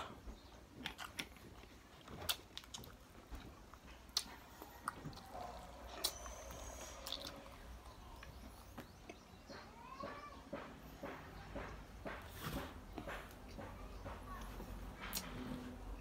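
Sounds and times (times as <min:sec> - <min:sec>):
person chewing: 0:00.0 - 0:09.3.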